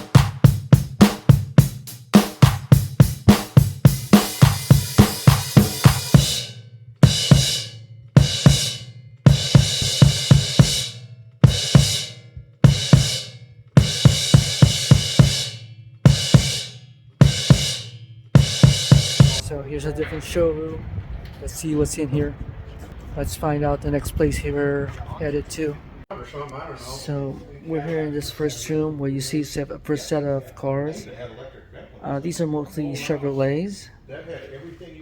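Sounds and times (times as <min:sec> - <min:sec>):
rock drum kit playing: 0:00.0 - 0:19.4.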